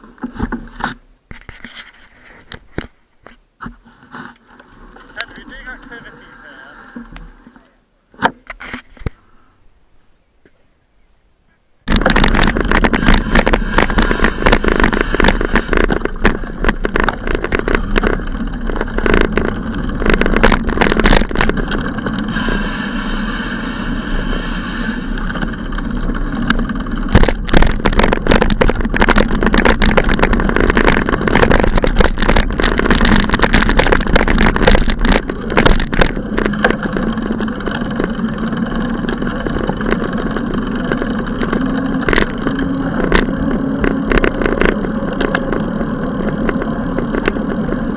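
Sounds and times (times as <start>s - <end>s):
traffic noise: 9.7s - 47.9s
wind buffeting microphone: 11.8s - 47.9s.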